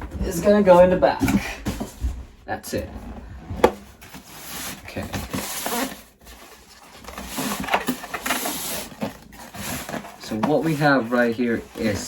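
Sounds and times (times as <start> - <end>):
packaging rustling and rubbing: 3.6 - 12.0.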